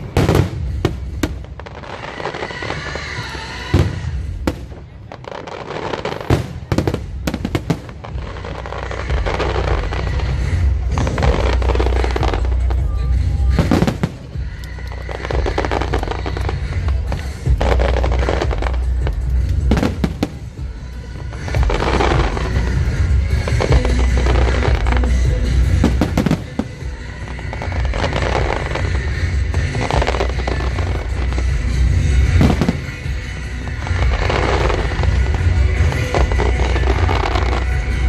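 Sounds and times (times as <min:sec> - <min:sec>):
fireworks crackle: 0:00.0 - 0:38.0.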